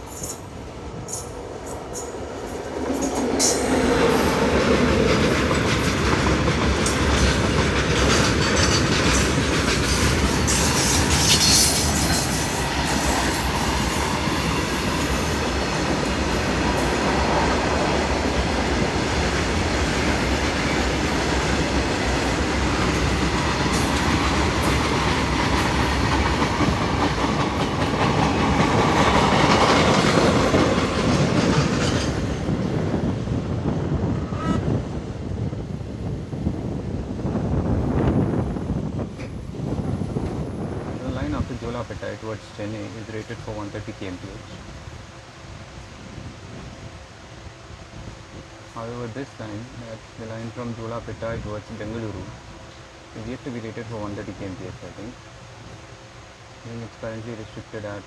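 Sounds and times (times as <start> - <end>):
clickety-clack over rail joints: 0.0 - 33.5
train wheels on rails: 0.0 - 58.0.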